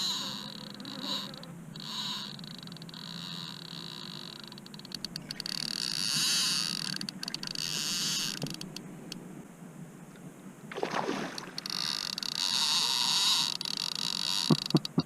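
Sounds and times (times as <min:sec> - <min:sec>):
insects buzzing: 0:10.7 - 0:15.0.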